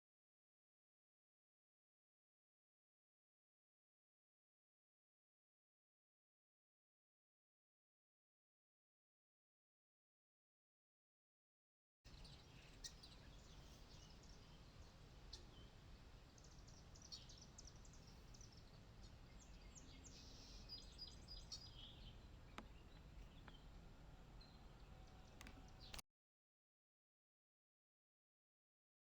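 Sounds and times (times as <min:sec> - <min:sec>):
faint bird chirps: 0:12.1 - 0:26.0
low outdoor background noise: 0:12.1 - 0:26.0.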